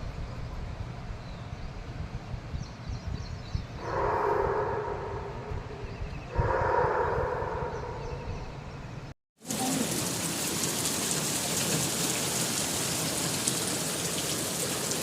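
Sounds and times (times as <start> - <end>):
low rumble: 3.5 - 9.1.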